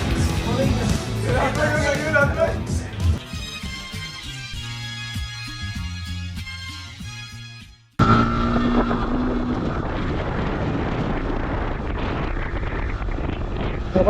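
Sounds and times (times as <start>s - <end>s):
background music: 0.0s - 8.0s
motorcycle road and engine noise: 8.0s - 14.0s
wind rushing over microphone: 8.0s - 14.0s.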